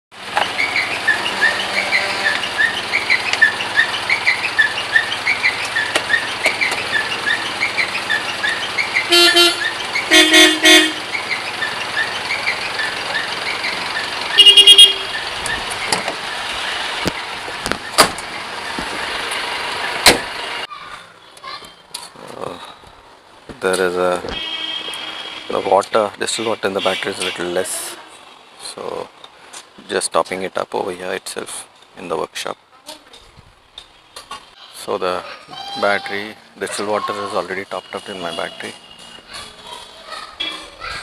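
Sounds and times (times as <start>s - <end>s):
traffic noise: 0.1s - 41.0s
vehicle horns honking: 1.2s - 2.6s, 9.0s - 11.1s, 14.3s - 15.3s, 24.3s - 27.7s, 37.2s - 39.3s.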